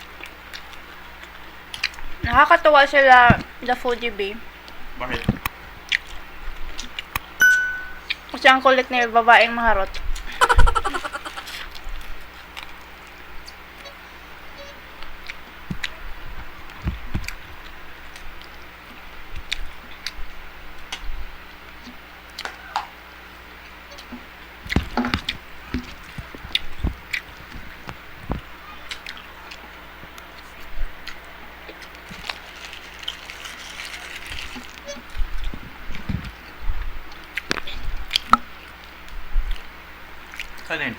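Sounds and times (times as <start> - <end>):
wet chewing and mouth sounds: 0.1 - 2.2, 5.4 - 7.4, 15.0 - 22.6, 23.6 - 40.7.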